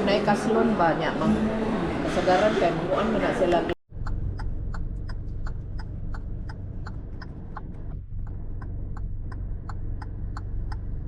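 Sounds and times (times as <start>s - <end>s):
steady low hum: 3.4s - 11.0s
rapid mechanical ticking: 3.9s - 11.0s.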